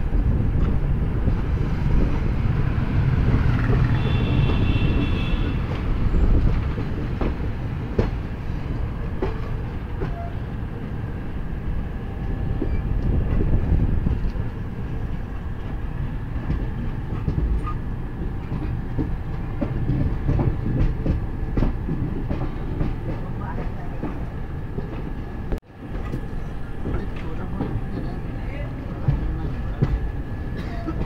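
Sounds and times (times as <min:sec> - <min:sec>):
train rumbling: 0:00.0 - 0:31.0
wheels clicking over rail joints: 0:12.5 - 0:25.1, 0:25.8 - 0:31.0.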